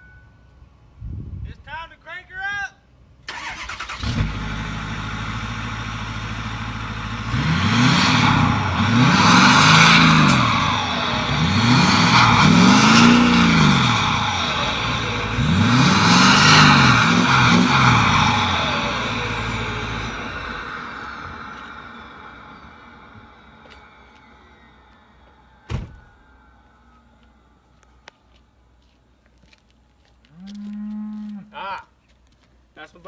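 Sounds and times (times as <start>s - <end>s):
diesel truck engine revving: 3.3s - 26.9s.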